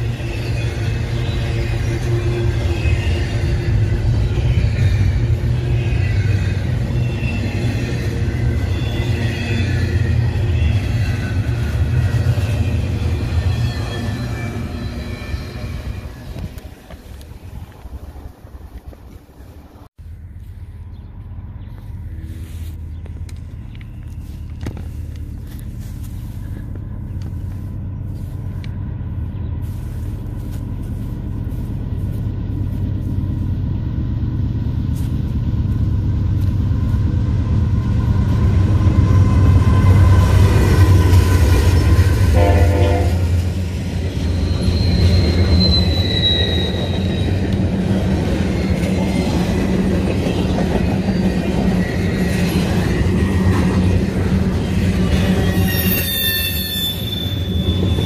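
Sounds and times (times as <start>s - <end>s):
high wheel squeal: 0.0s - 16.7s, 38.8s - 53.6s, 54.2s - 58.0s
locomotive engine rumble: 0.0s - 58.0s
train wheels rumbling: 0.0s - 58.0s
train horn: 42.2s - 43.5s.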